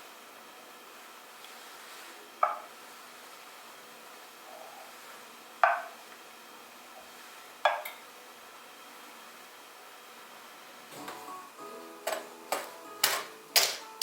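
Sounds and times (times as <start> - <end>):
faint room hiss: 0.0 - 14.0
sharp knocks of hard objects: 5.6 - 5.9, 12.0 - 13.9.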